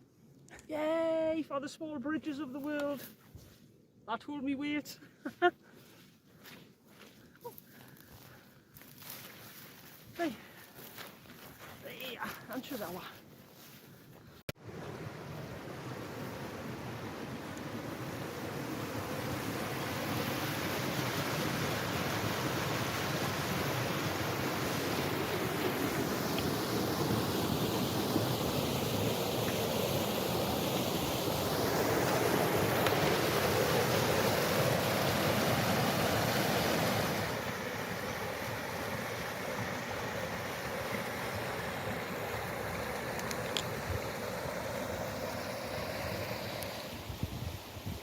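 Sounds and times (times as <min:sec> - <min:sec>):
wind buffeting microphone: 0:47.0 - 0:48.0.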